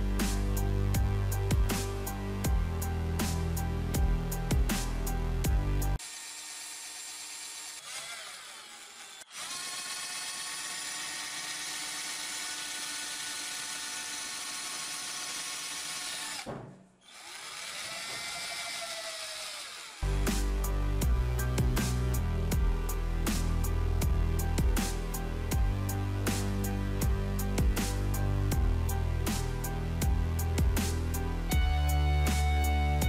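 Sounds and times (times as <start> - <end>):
electric drill whining: 6.0 - 20.2.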